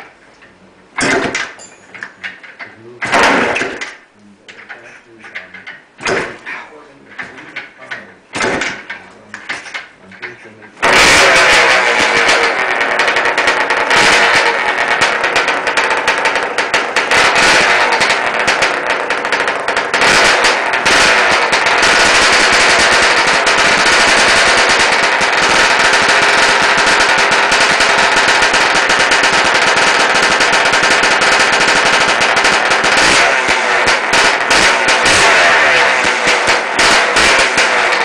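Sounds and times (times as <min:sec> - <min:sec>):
two-stroke engine running hard: 0:10.8 - 0:38.0.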